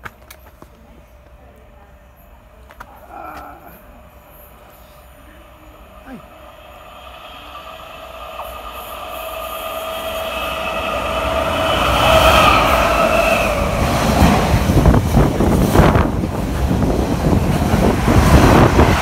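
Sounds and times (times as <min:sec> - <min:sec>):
train whine and rumble: 0:00.0 - 0:19.0.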